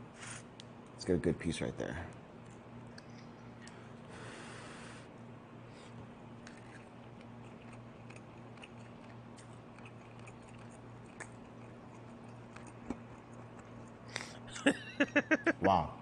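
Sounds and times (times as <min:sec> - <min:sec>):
man chewing: 0:05.8 - 0:14.5.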